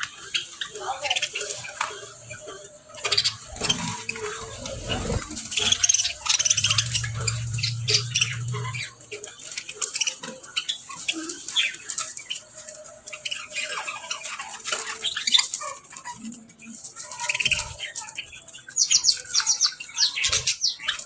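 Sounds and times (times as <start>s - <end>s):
low hum: 3.1s - 9.6s.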